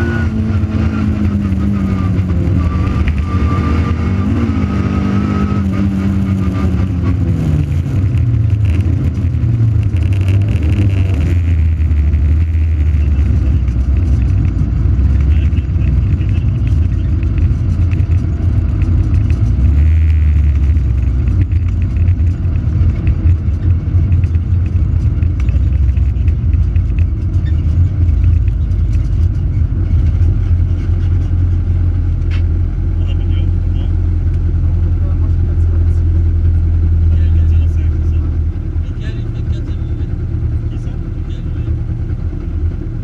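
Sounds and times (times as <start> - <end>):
car engine running: 0.0 - 43.0
scattered clicks: 20.6 - 30.4.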